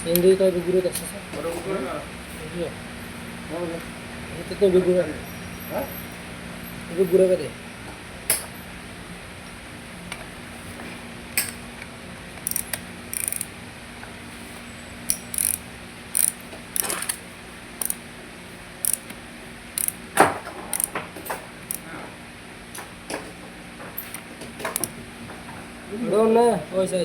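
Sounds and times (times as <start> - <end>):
hand tools clicking and clinking: 12.4 - 13.5, 15.1 - 17.2, 19.8 - 20.0, 20.7 - 21.8, 24.0 - 25.0.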